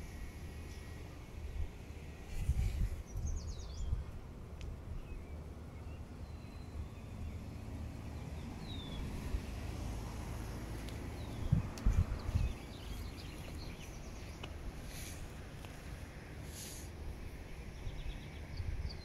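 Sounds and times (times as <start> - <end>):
small birds chirping: 0.0 - 19.0
low rumble on microphone: 1.5 - 5.4, 8.1 - 15.5.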